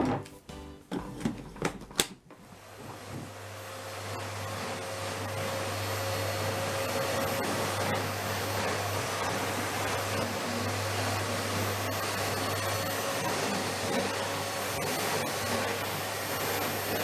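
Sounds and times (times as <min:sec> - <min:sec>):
background music: 0:00.0 - 0:01.6
vacuum cleaner motor whining: 0:01.0 - 0:17.0.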